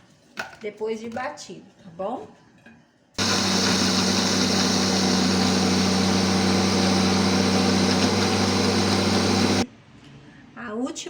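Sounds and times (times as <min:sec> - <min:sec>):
blender motor grinding cookies: 0:03.2 - 0:09.6.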